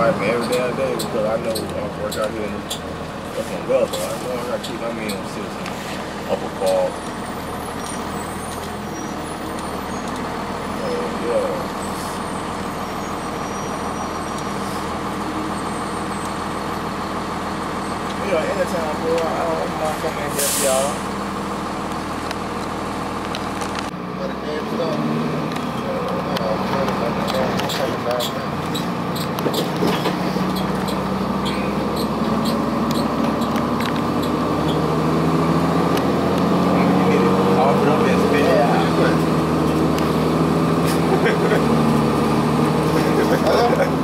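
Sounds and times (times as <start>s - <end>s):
bus diesel engine hum: 0.0s - 44.0s
rattles and clicks from bus body: 0.3s - 7.1s, 7.8s - 10.3s, 25.5s - 34.8s.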